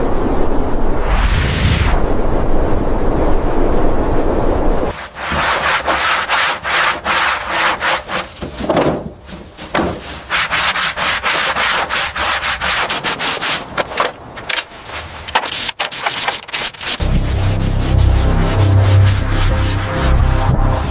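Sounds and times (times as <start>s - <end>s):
steady rushing noise: 0.6s - 4.9s
hand sanding strokes: 5.0s - 8.6s, 9.3s - 13.8s.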